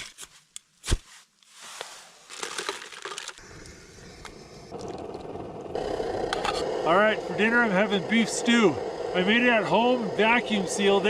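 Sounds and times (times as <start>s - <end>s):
hissing and crunching: 0.0s - 11.0s
camp stove burner rushing: 3.4s - 11.0s.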